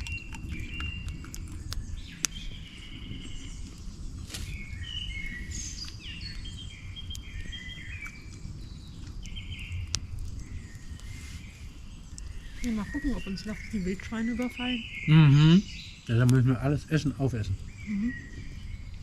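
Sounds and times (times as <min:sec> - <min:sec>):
birds chirping and whistling: 0:00.0 - 0:19.0
steady low rumble: 0:00.0 - 0:19.0.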